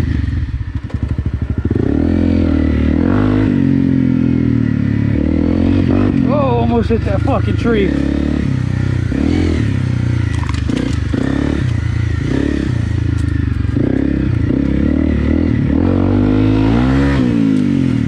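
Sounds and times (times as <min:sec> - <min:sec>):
motorcycle engine revving: 0:00.0 - 0:18.0
bike clattering over rough ground: 0:10.3 - 0:11.9.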